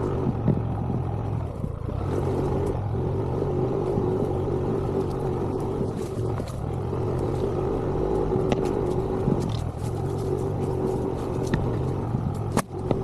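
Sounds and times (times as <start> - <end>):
vehicle engine under load: 0.0 - 13.0.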